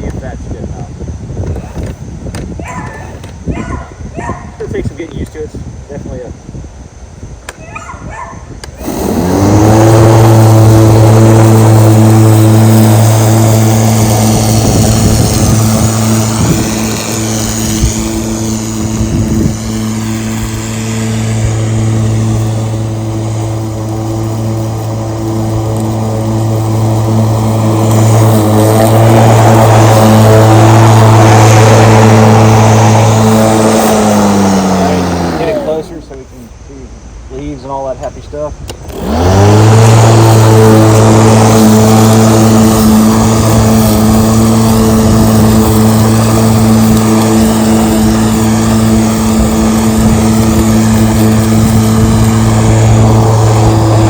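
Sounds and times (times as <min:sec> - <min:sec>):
electric lawn mower motor humming: 0:08.5 - 0:36.1, 0:38.7 - 0:54.0.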